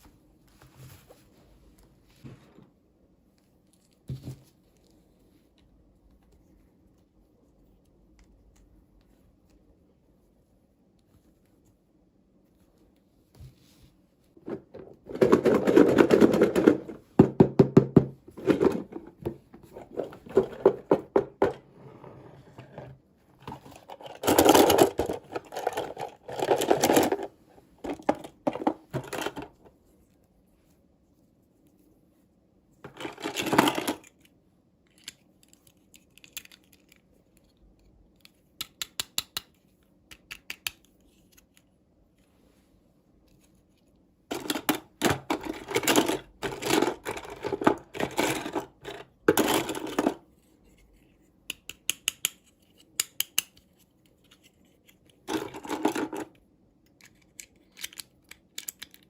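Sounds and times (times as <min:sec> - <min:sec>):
plastic toy pieces rattling: 0:23.8 - 0:29.6, 0:44.3 - 0:50.2, 0:55.2 - 0:56.4
plastic pieces clicking and tapping: 0:34.9 - 0:37.0, 0:38.1 - 0:41.6, 0:44.3 - 0:50.2, 0:51.5 - 0:59.0.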